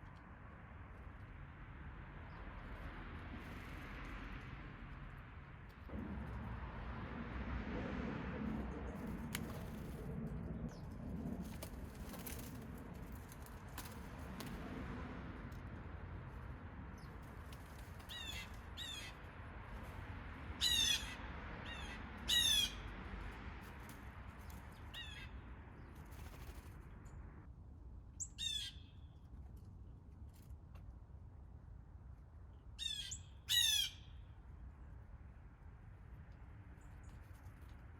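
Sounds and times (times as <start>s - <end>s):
low background rumble: 0.0s - 23.2s.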